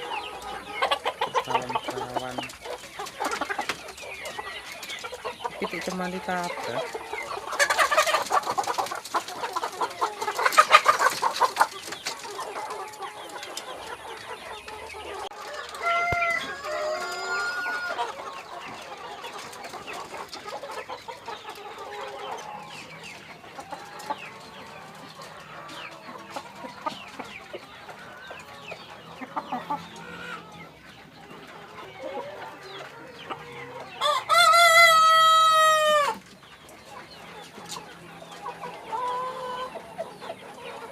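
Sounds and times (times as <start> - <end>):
chickens clucking and squawking: 0.0 - 40.9
rooster crowing: 15.5 - 18.1, 34.0 - 36.2.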